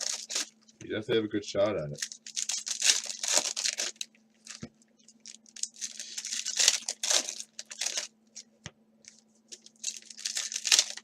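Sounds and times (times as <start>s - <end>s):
card wrappers tearing and crinkling: 0.0s - 0.6s, 1.9s - 8.1s, 9.1s - 11.0s.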